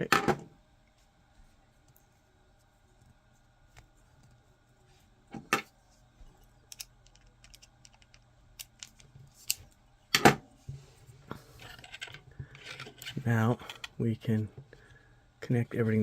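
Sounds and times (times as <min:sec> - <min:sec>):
plastic parts clicking: 0:06.7 - 0:09.6.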